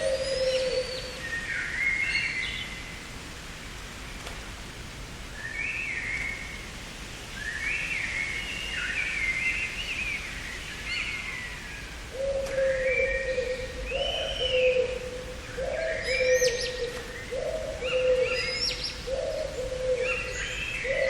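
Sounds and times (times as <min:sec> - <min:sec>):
songbirds singing: 0:00.0 - 0:03.0, 0:07.3 - 0:21.0
steady background hiss: 0:00.0 - 0:21.0.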